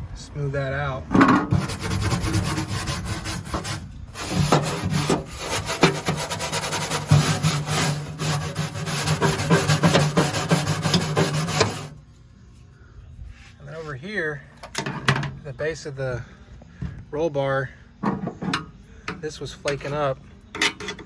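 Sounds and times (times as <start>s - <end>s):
wire brush scraping metal: 1.5s - 12.0s.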